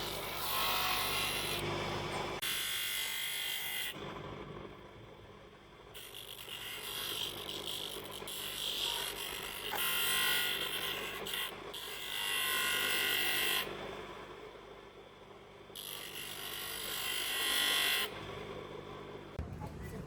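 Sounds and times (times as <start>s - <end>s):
handheld power tool on plastic: 6.2s - 13.7s.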